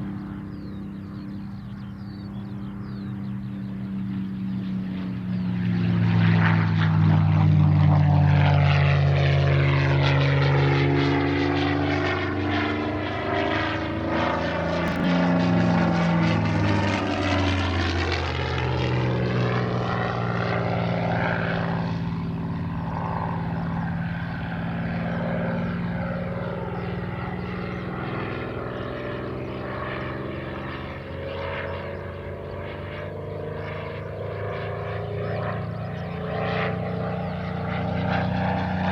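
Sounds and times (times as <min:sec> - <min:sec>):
propeller plane engine passing: 0:00.0 - 0:38.9.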